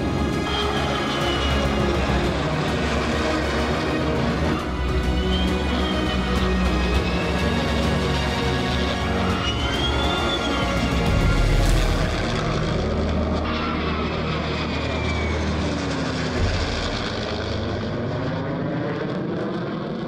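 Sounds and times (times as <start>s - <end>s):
aircraft engine flying past: 0.0s - 20.0s.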